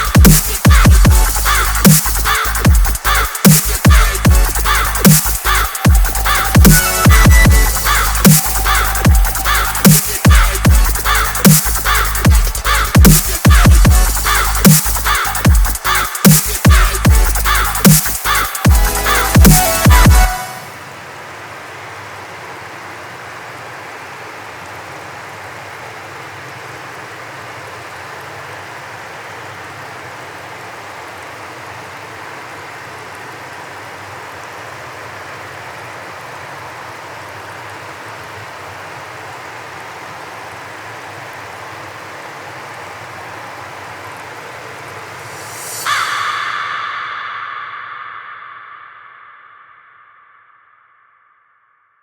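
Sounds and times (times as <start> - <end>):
waterfall rushing: 0.0 - 50.0.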